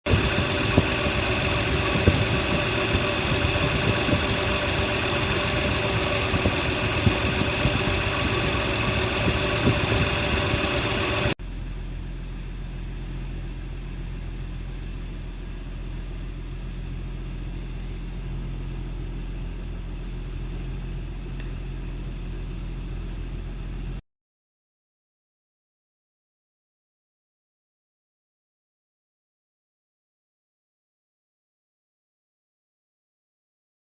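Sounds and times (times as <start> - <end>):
car engine idling: 0.1 - 23.9.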